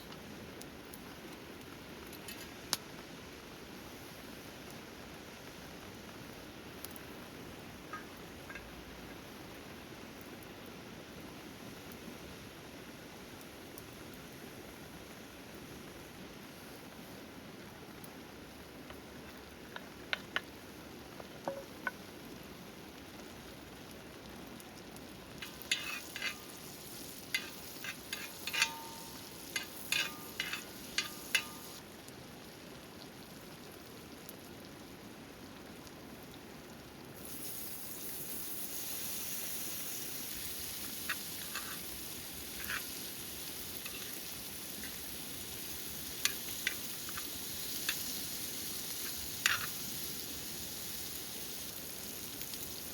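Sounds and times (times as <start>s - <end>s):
food sizzling in a pan: 5.4s - 10.0s, 23.1s - 31.9s, 37.1s - 52.9s.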